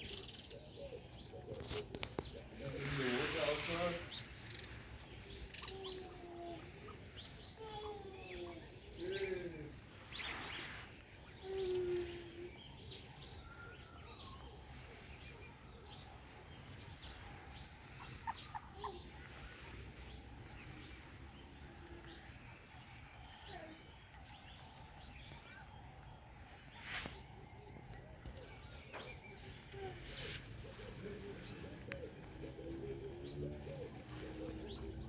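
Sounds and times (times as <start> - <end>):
rustle: 0.0 - 35.0
ostrich chicks calling: 11.9 - 23.6, 24.2 - 35.0.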